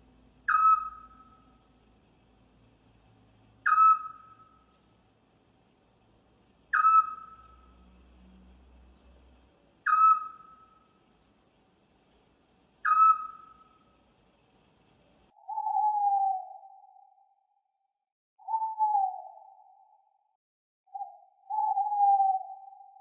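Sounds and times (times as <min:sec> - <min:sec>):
faint background noise: 0:00.0 - 0:16.6
owl calling: 0:00.4 - 0:01.7, 0:03.6 - 0:04.8, 0:06.7 - 0:07.8, 0:09.8 - 0:11.0, 0:12.8 - 0:14.0, 0:15.4 - 0:17.2, 0:18.4 - 0:20.0, 0:20.9 - 0:23.0.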